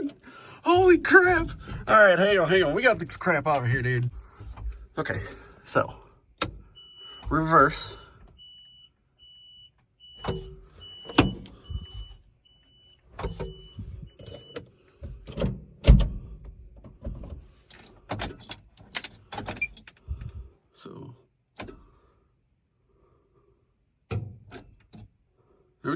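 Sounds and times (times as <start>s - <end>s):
knocks and clunks: 0.0s - 5.5s, 13.1s - 20.5s
reverse warning beeps: 6.8s - 14.6s.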